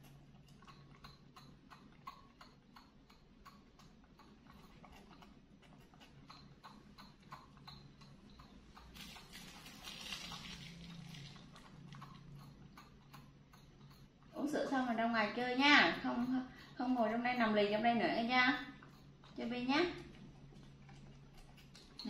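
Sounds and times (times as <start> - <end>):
monkey sucking through straw: 8.8 - 12.2.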